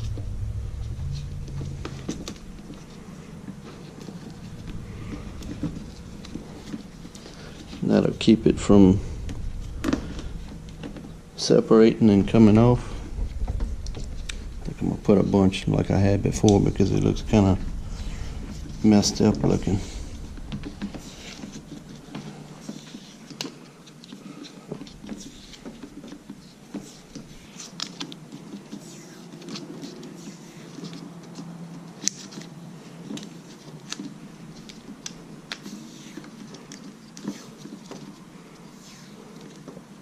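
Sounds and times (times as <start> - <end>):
low steady hum: 0.0 - 28.4
crackles and clicks of handling: 12.2 - 40.0.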